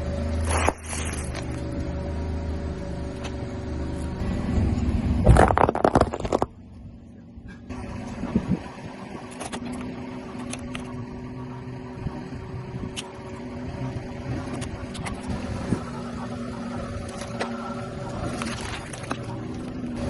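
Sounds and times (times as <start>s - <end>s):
car engine humming: 0.0s - 20.0s
tyre crushing objects: 5.2s - 6.5s.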